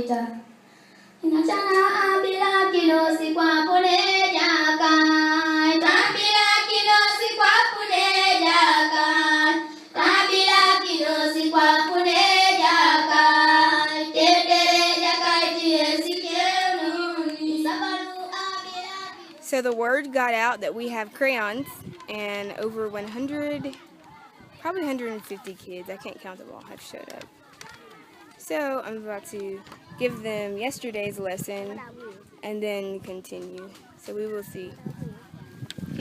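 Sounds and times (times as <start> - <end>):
children singing together: 1.2 - 19.3.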